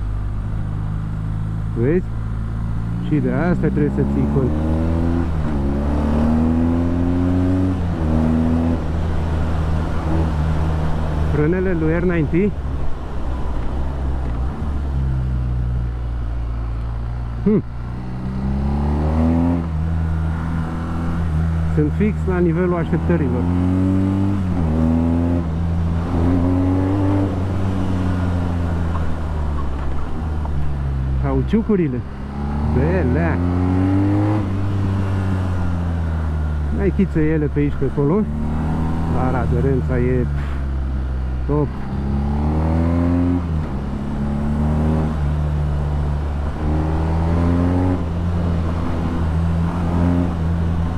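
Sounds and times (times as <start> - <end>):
motorcycle engine revving: 0.6 - 50.9.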